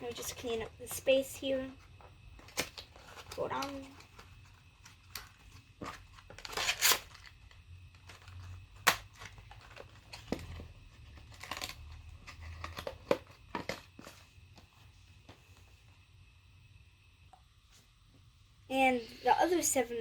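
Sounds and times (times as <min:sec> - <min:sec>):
packaging rustling and crinkling: 0:01.8 - 0:15.7.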